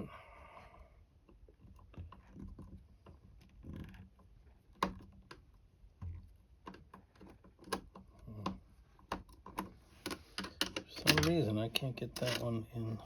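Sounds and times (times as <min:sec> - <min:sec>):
screwdriver metallic clicks and taps: 0:06.6 - 0:11.4.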